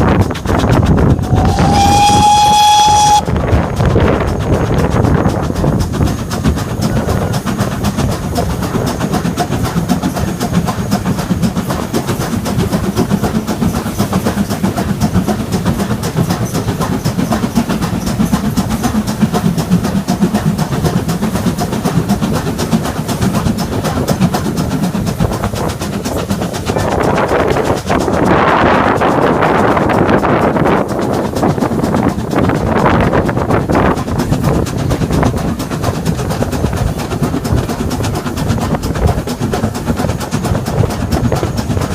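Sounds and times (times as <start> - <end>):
rushing noise: 0.0 - 15.2
train rumbling on track: 0.0 - 41.9.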